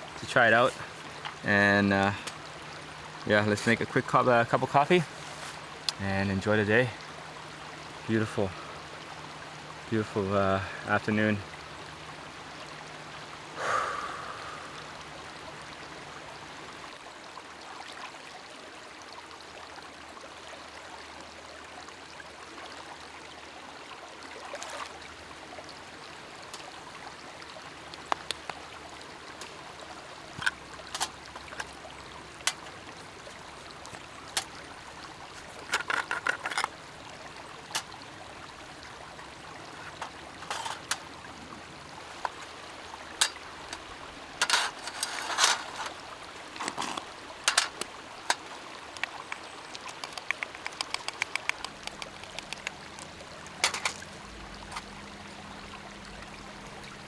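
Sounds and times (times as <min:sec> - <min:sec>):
trickling water: 0:00.0 - 0:57.0
sharp clicks and taps: 0:28.0 - 0:28.6, 0:46.6 - 0:54.0.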